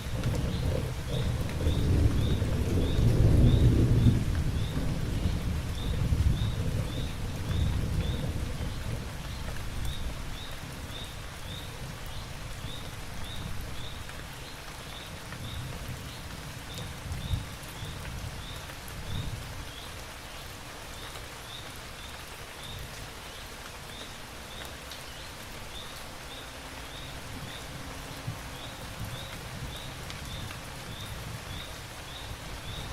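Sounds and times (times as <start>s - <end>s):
thunder rumbling: 0.0s - 10.4s
steady rain: 0.0s - 32.9s.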